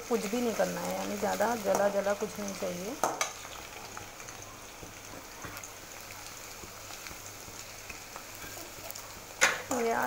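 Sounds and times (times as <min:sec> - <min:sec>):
potatoes sizzling in oil: 0:00.0 - 0:10.0.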